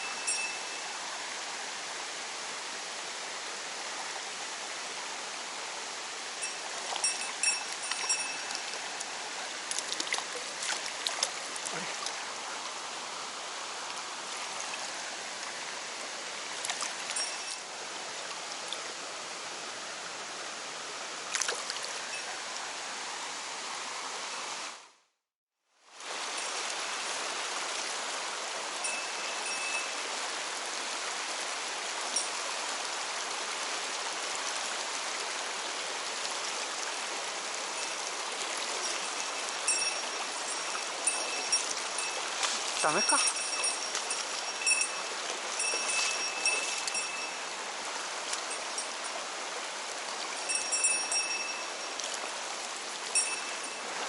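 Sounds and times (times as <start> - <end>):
stream rushing over rocks: 0.0 - 25.0, 25.9 - 54.0.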